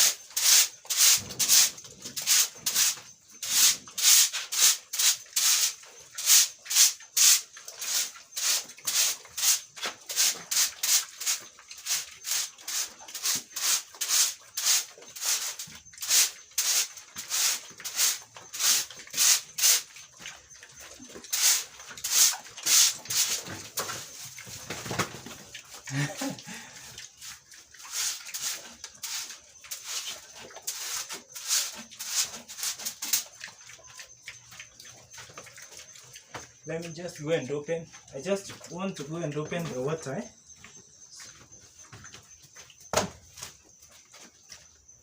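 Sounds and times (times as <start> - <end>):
broom sweeping a dry floor: 0.0 - 19.9, 21.3 - 24.4, 27.2 - 33.2.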